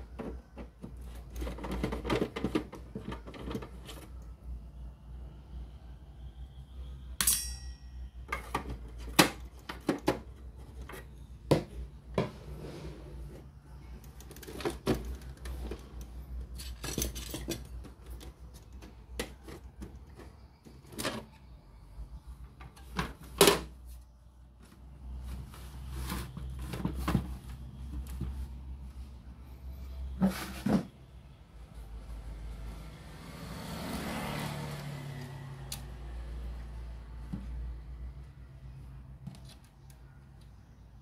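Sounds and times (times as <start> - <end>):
metal parts and tools clinking: 7.2 - 9.0, 14.1 - 18.8.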